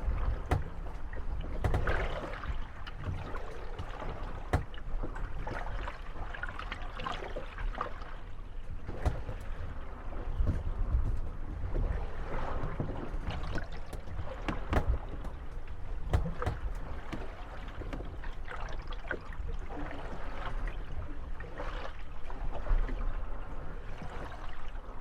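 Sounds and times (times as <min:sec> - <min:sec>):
water lapping: 0:00.0 - 0:25.0
wooden boats creaking and knocking: 0:00.0 - 0:25.0.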